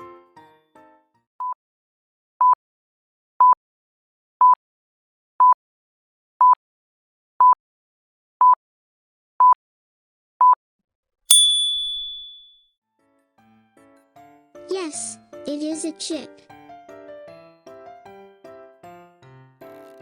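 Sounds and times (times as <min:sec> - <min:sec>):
bright ding: 0:11.3 - 0:12.6.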